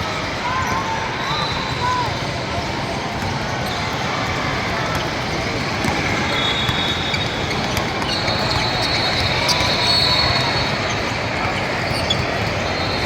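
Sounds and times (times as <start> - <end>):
crowd and player noise: 0.0 - 13.0
shoes squealing: 3.2 - 13.0.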